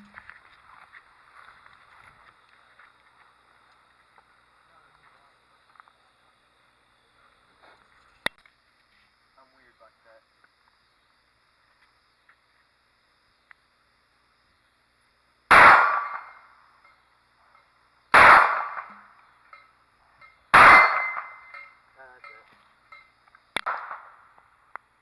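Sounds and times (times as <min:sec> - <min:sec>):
loud ringing bangs: 0:18.2 - 0:24.2
sharp faint crack: 0:23.0 - 0:24.9.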